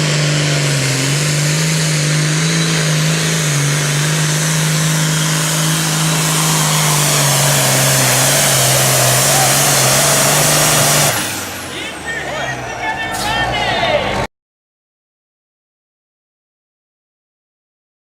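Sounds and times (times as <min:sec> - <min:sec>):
tractor diesel engine at full throttle: 0:00.0 - 0:14.3.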